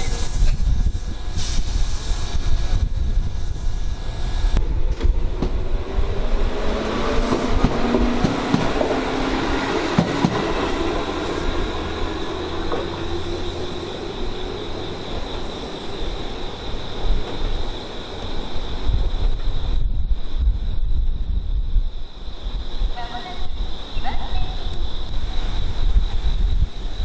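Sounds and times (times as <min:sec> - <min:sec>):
electric train running past: 0:00.0 - 0:27.0
wind buffeting microphone: 0:00.0 - 0:27.0
traction motor hum: 0:04.5 - 0:17.0.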